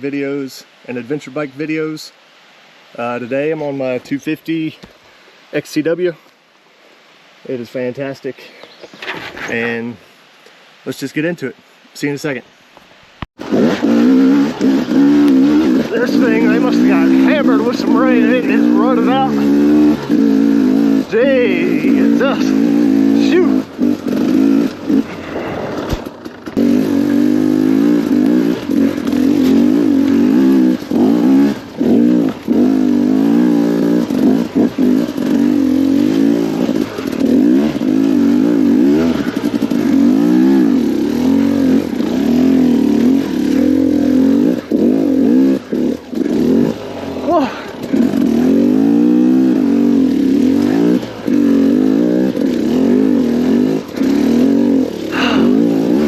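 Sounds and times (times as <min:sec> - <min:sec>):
two-stroke motorcycle engine revving: 0:13.4 - 0:56.0.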